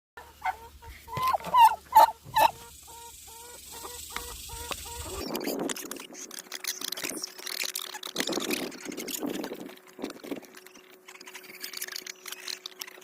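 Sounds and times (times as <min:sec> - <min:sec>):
fowl clucking: 0:00.2 - 0:05.2
fowl squawking: 0:00.2 - 0:05.4.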